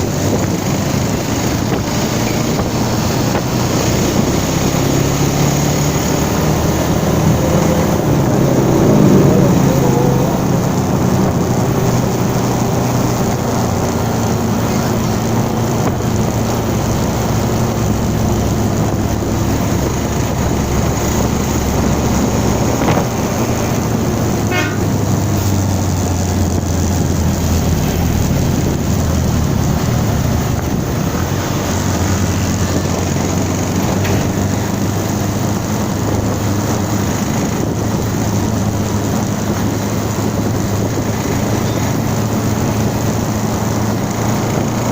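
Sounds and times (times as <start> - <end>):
vehicle engine and road noise: 0.0 - 44.9
car horn toot: 24.4 - 25.0.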